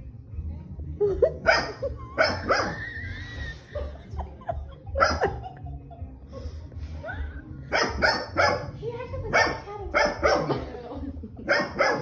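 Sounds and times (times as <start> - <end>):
dog barking: 1.4 - 2.8, 5.0 - 5.4, 7.7 - 10.6, 11.4 - 12.0.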